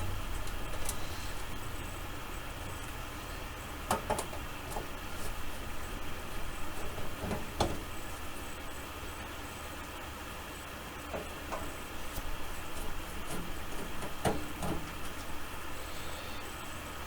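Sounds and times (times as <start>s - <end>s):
steady low hum: 0.0s - 17.0s
clicks and knocks on metal: 3.9s - 4.9s, 6.7s - 7.9s, 11.1s - 15.3s.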